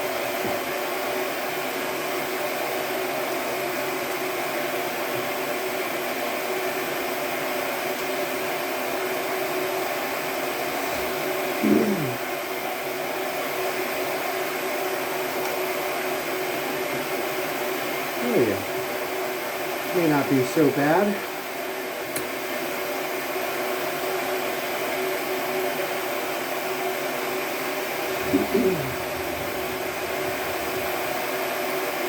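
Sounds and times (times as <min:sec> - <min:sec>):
shop blower whirring: 0:00.0 - 0:32.0
short sound falling in pitch: 0:28.2 - 0:30.5.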